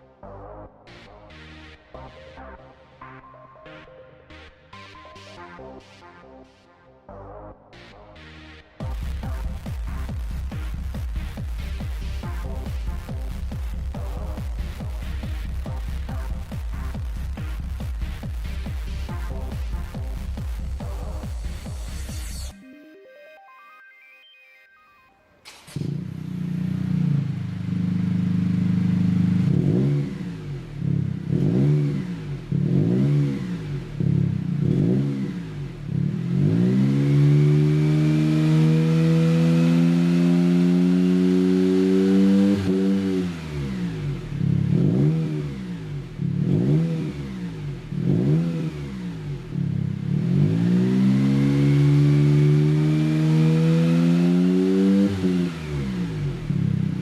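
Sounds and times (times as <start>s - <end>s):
car engine revving through exhaust: 8.8s - 22.5s, 25.8s - 57.0s.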